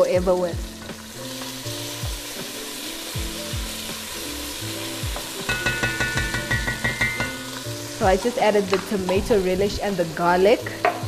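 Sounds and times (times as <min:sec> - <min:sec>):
background music with steady beat: 0:00.0 - 0:11.0
relish sizzling in hot oil: 0:00.0 - 0:11.0.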